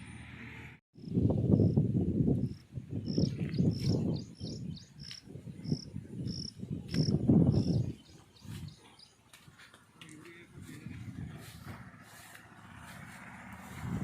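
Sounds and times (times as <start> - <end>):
cricket chirping: 2.4 - 7.8.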